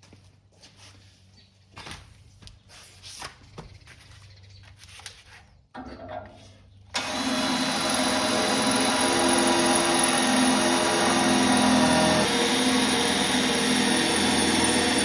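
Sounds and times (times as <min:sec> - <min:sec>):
power drill whining: 0:06.9 - 0:15.0.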